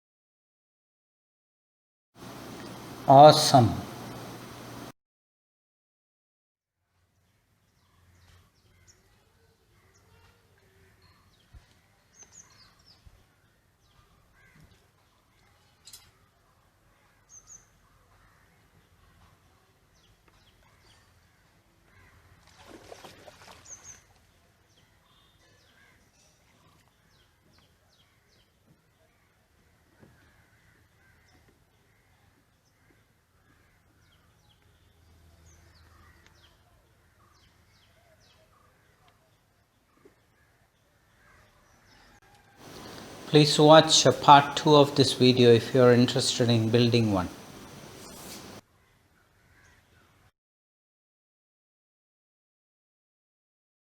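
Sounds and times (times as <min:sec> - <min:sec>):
faint bird calls: 0:39.9 - 0:49.8
harsh bird call: 0:42.6 - 0:48.6.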